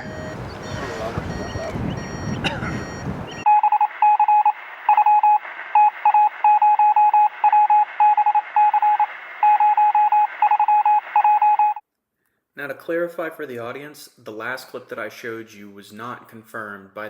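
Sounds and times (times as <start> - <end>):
thin radio noise: 0.0 - 3.4
morse code beeps: 0.0 - 11.8.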